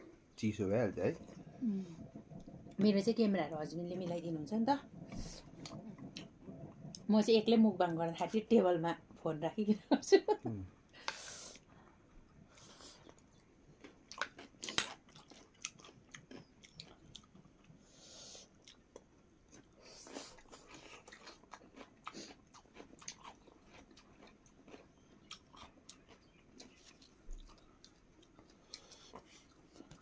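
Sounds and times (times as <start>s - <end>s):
wet chewing and lip smacks: 1.2s - 2.8s, 4.9s - 7.1s, 12.3s - 17.8s, 18.4s - 30.0s.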